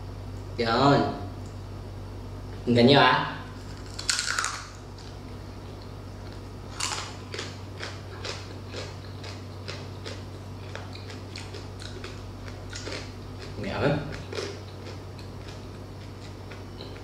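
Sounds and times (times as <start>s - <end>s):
crunchy chewing: 3.6s - 17.0s.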